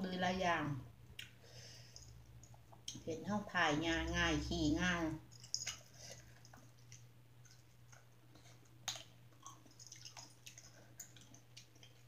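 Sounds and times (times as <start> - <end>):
faint chewing with wet smacks: 1.0 - 1.4, 2.0 - 3.1, 5.3 - 12.0.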